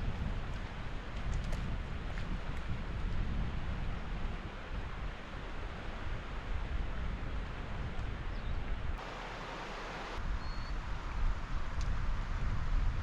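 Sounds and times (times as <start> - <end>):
wind buffeting microphone: 0.0 - 13.0
rushing outdoor hiss: 9.0 - 11.6.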